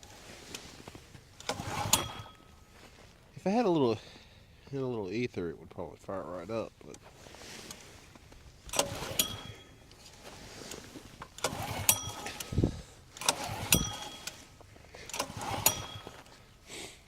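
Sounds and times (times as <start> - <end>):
recoil starter cranking engine: 0.0 - 2.6, 8.6 - 16.6
short metallic ring: 1.6 - 2.8, 8.8 - 9.9, 11.5 - 12.5, 13.2 - 16.4.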